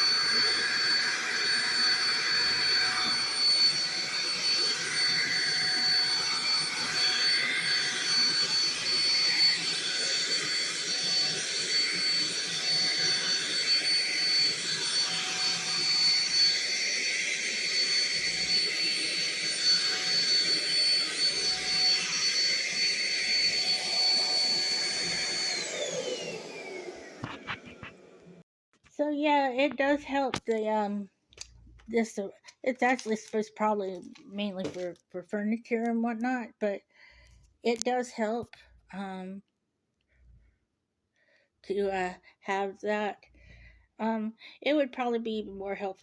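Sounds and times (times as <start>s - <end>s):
vacuum cleaner motor whine: 0.0s - 28.4s.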